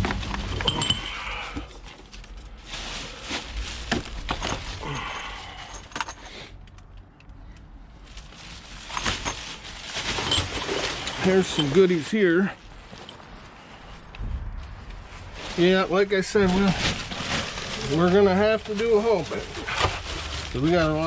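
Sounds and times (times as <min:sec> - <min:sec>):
items clicking and clinking: 0:00.0 - 0:02.4, 0:03.3 - 0:07.6, 0:08.7 - 0:12.1
plastic bags crinkling: 0:00.0 - 0:06.3, 0:08.0 - 0:14.1, 0:15.1 - 0:21.0.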